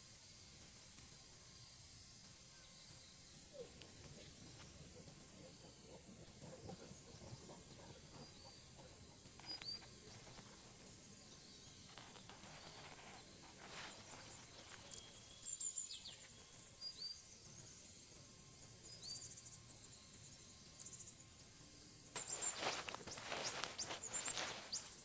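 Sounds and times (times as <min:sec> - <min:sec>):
rustling: 0:11.9 - 0:15.0, 0:22.2 - 0:25.0.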